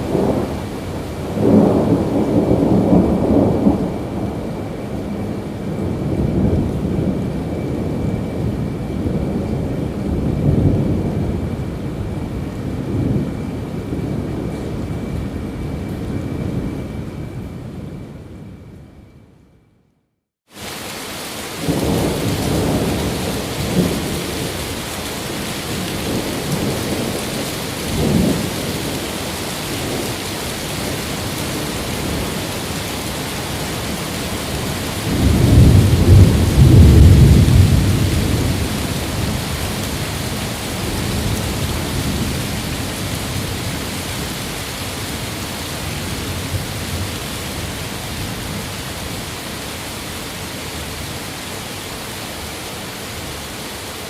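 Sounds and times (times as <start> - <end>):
steady rain: 0.0 - 18.7, 20.5 - 54.0
rolling thunder: 0.0 - 19.1, 21.5 - 49.3.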